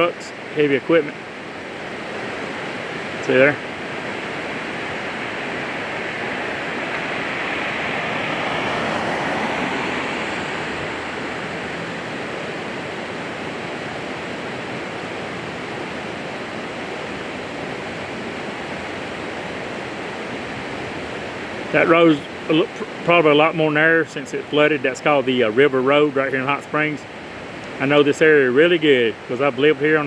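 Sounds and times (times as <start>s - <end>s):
traffic and tyre noise: 0.0s - 25.7s
heavy truck passing: 2.5s - 17.4s.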